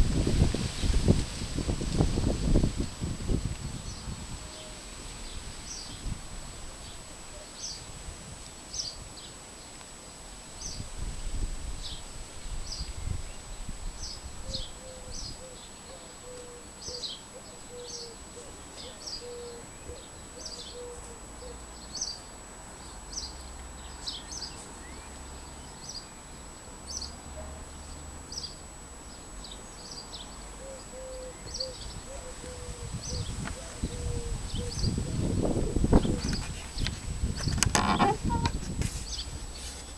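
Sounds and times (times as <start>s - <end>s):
small birds chirping: 11.8s - 39.9s.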